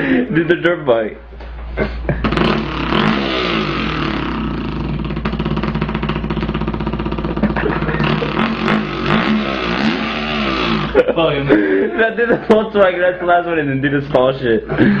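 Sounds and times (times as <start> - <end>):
man imitating engine with voice: 2.2 - 11.1.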